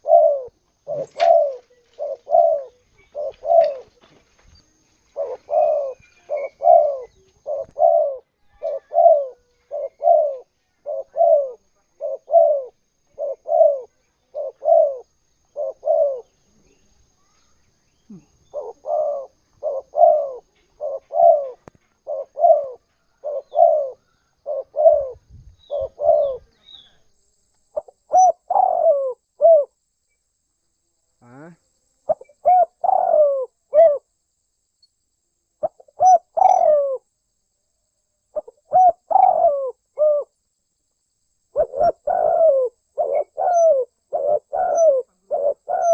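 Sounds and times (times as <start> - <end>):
dove cooing: 0.0 - 4.2, 5.1 - 16.8, 18.1 - 27.0, 27.8 - 29.8, 32.1 - 34.1, 35.6 - 37.1, 38.3 - 40.3, 41.5 - 45.9.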